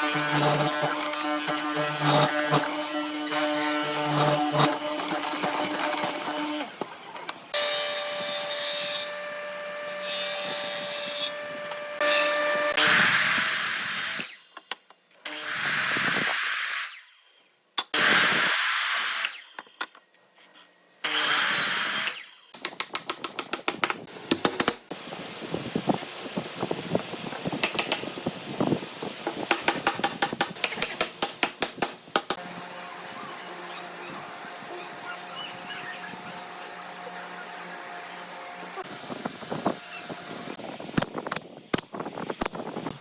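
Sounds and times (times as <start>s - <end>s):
power tool running: 0.0s - 8.2s, 32.3s - 40.6s.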